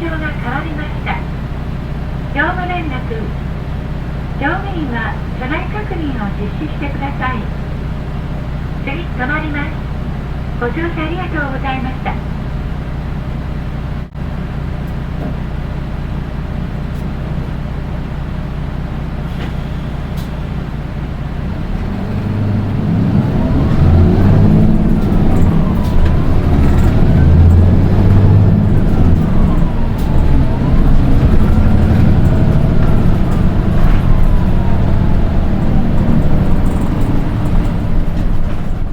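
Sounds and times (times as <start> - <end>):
bus engine droning: 0.0 - 38.9
high-pitched engine whine: 21.1 - 38.9.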